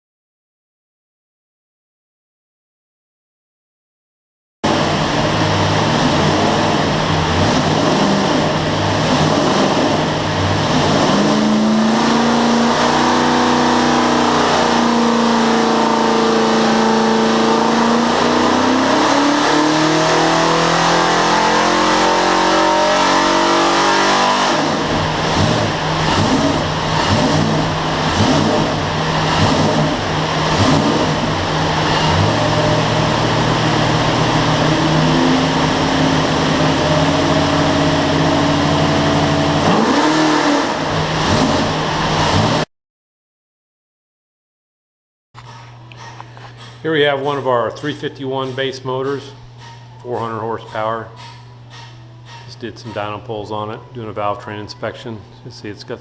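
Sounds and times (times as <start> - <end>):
engine revving under load: 4.6 - 42.7.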